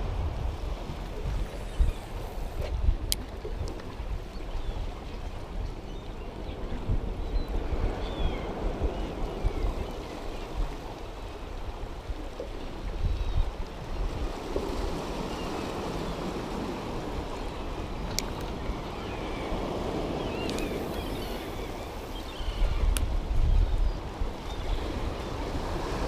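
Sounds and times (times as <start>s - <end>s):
wind rumbling on microphone: 0.0s - 26.0s
sea surf washing: 13.7s - 26.0s.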